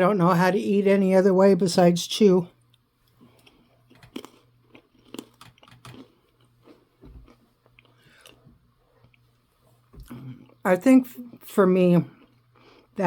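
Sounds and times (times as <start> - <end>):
person chewing cracker crunches: 2.6 - 9.3, 12.1 - 13.0.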